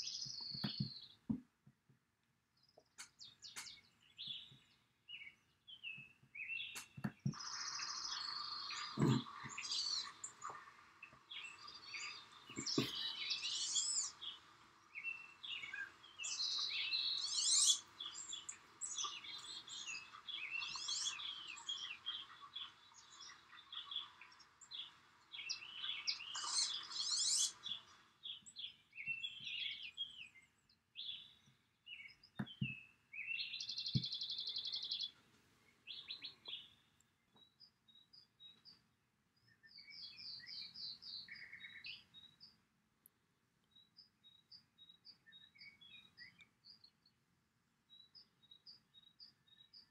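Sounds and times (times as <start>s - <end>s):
birds chirping and calling: 2.8s - 30.4s, 39.6s - 42.5s.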